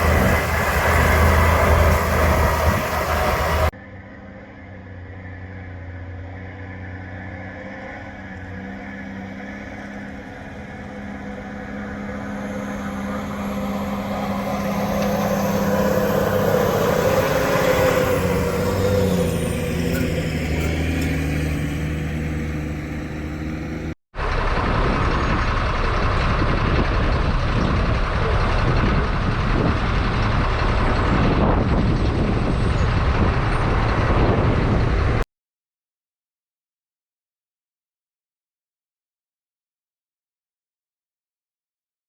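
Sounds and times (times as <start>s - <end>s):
rushing machine noise: 0.0s - 3.7s, 11.7s - 35.2s
diesel machinery engine: 0.0s - 35.2s.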